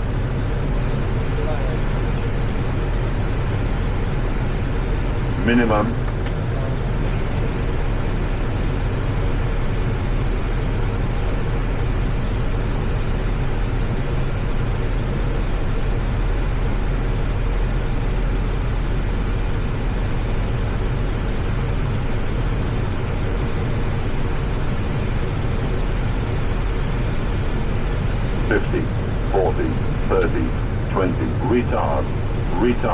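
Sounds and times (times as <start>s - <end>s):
faint high whine: 0.0s - 32.9s
jet engines at approach power: 0.0s - 32.9s
cockpit airflow: 21.0s - 32.9s.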